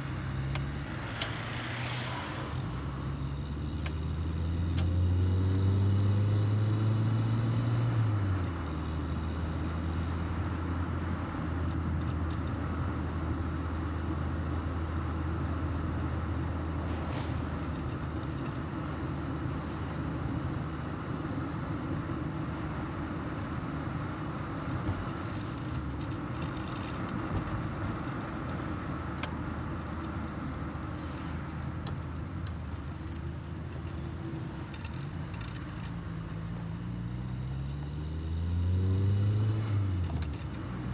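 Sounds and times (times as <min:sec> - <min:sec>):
car engine running: 0:00.0 - 0:07.9
road noise: 0:00.0 - 0:12.4, 0:13.0 - 0:40.9.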